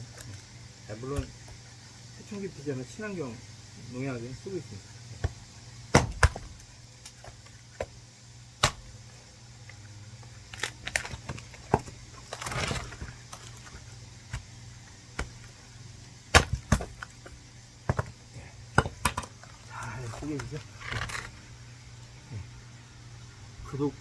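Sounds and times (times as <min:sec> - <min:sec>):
wood splitting crackle: 0:00.0 - 0:02.4, 0:04.0 - 0:22.1
hatchet knocking into wood: 0:06.0 - 0:06.5.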